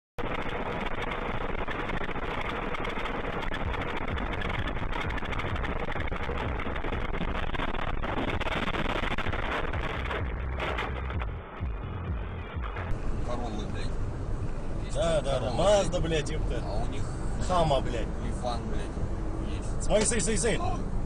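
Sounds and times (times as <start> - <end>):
moving car road and engine noise: 0.2 - 21.0.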